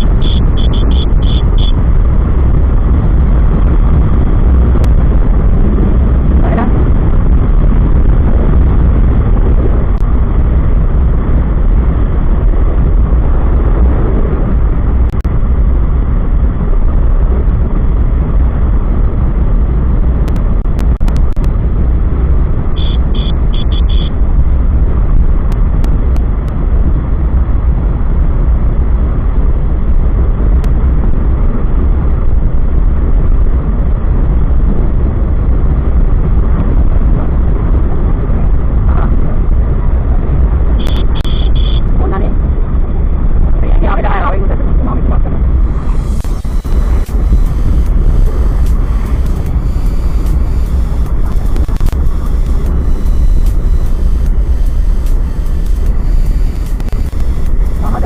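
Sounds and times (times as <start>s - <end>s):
quick high beeps: 0.0s - 1.8s, 22.8s - 24.1s, 40.8s - 41.8s, 45.7s - 58.0s
motorcycle road noise: 0.0s - 58.0s
wind buffeting microphone: 0.0s - 58.0s.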